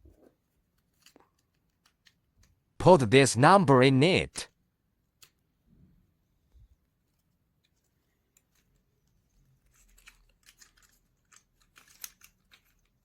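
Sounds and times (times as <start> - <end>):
small wooden parts clicking: 9.6 - 13.0.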